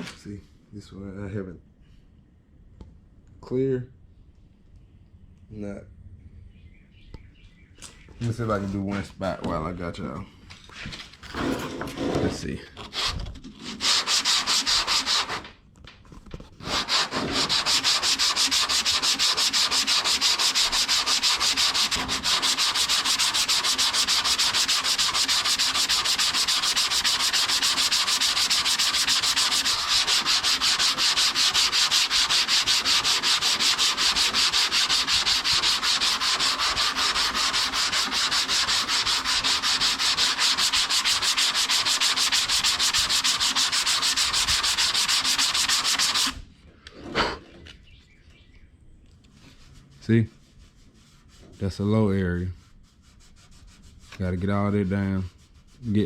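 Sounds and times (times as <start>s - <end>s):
sandpaper rubbing back and forth: 12.8s - 15.6s, 16.6s - 46.4s, 49.4s - 56.0s.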